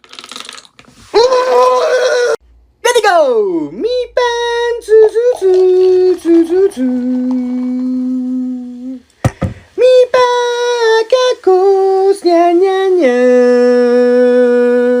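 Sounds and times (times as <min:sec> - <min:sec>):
high voice singing held notes: 0:03.8 - 0:09.1.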